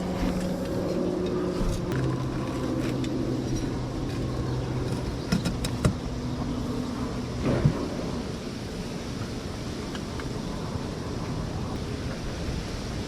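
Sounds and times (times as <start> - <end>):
motor hum: 0.0 - 12.6.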